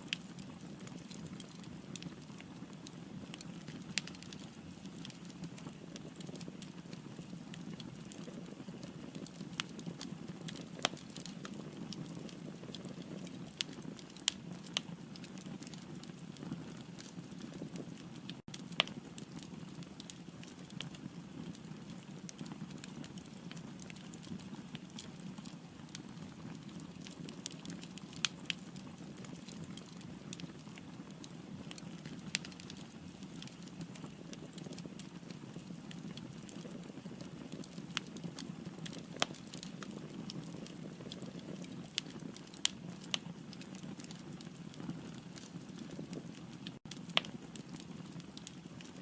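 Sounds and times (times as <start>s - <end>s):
firewood crackling and popping: 0.0s - 49.0s.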